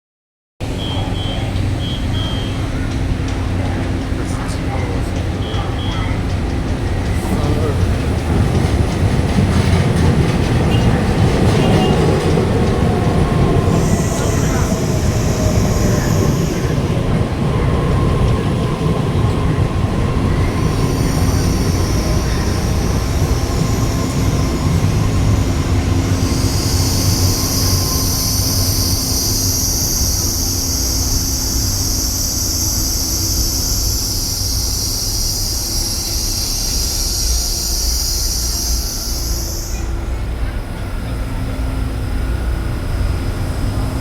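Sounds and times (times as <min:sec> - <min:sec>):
train rolling with low rumble: 0:00.6 - 0:44.0
high-pitched squeal from running gear: 0:12.9 - 0:40.1.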